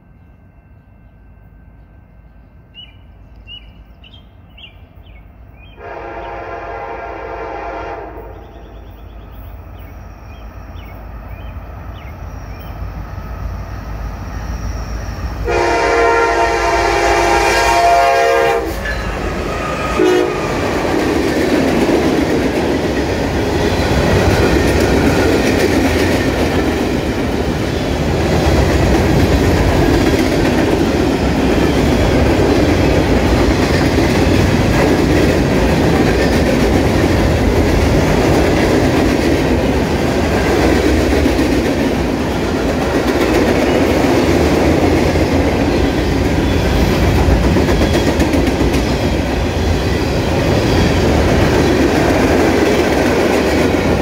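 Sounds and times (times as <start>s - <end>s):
locomotive air horn blasts: 5.8s - 8.5s, 15.4s - 20.6s
freight cars rumbling: 18.7s - 54.0s.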